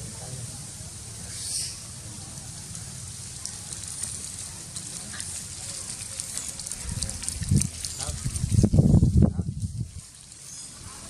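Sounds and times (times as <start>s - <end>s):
faint crackles: 2.2s - 11.0s.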